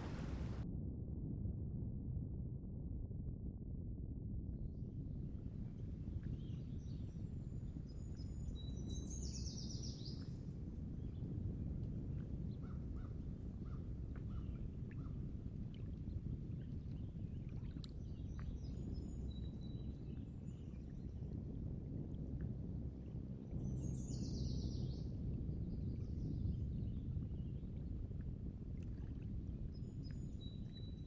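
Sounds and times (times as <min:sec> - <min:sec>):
low coastal rumble: 0:00.0 - 0:00.6.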